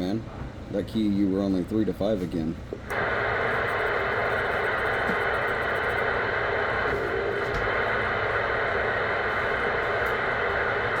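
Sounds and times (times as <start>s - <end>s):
radio static hiss: 2.9s - 11.0s.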